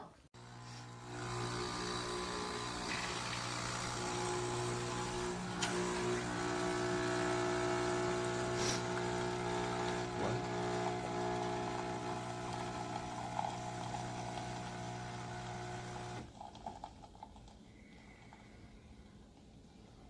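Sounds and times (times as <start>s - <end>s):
espresso machine pump buzzing: 0.4s - 16.4s.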